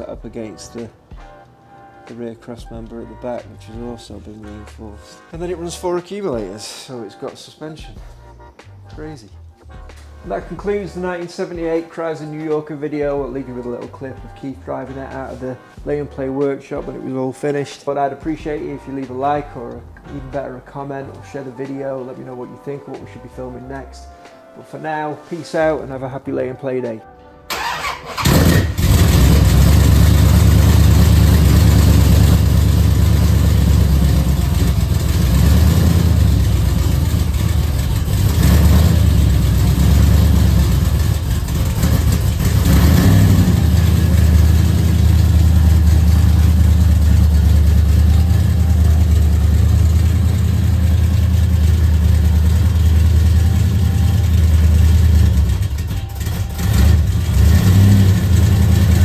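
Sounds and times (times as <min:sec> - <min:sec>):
car engine idling: 0:28.2 - 0:59.0.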